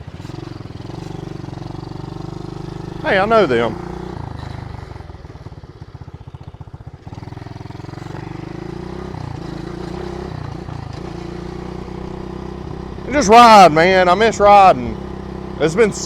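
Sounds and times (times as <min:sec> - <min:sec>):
small motorbike engine running: 0:00.0 - 0:16.0.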